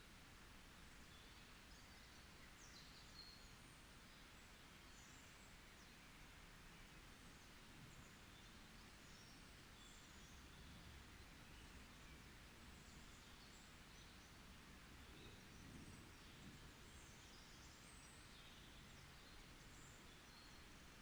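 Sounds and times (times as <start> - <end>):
soft steady hiss: 0.0 - 21.0.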